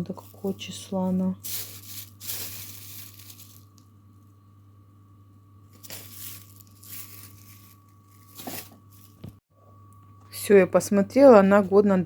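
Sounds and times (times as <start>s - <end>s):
plastic package crinkling: 0.0s - 3.8s, 5.7s - 9.2s
steady low hum: 0.0s - 11.8s.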